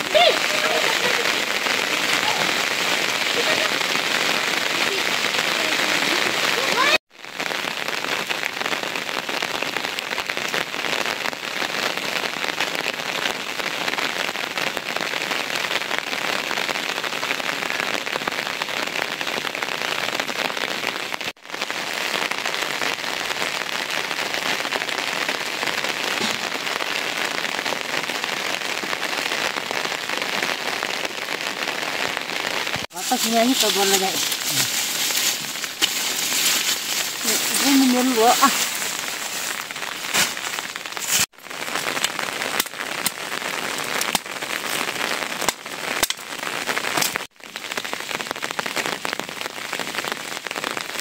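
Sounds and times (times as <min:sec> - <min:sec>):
steady rain falling: 0:00.0 - 0:51.0.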